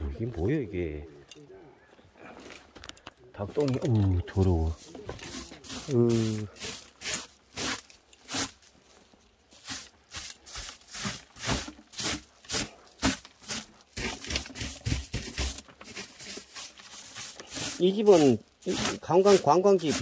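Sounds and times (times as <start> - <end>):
rough scraping strokes: 4.3 - 20.0.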